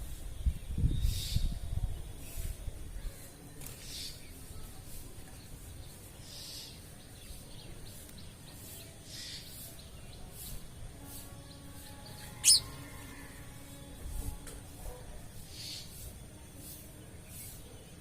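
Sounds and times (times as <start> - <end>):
outdoor background noise: 0.0 - 18.0
faint bird calls: 12.2 - 13.4.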